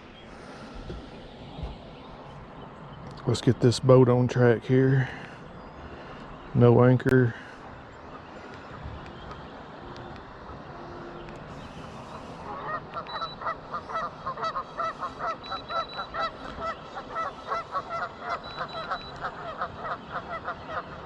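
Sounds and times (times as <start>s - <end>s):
geese honking: 8.6s - 21.0s.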